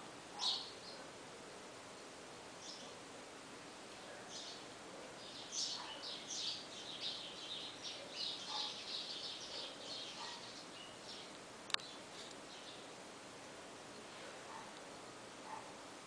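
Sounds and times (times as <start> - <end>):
small bird chirping rapidly: 0.4 - 1.0, 4.3 - 12.9.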